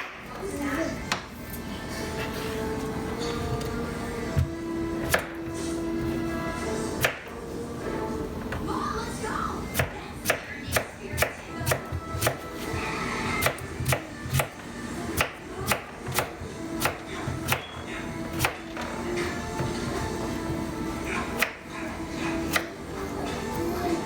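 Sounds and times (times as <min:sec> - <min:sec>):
knife chopping on cutting board: 0:09.8 - 0:12.8, 0:13.4 - 0:14.6.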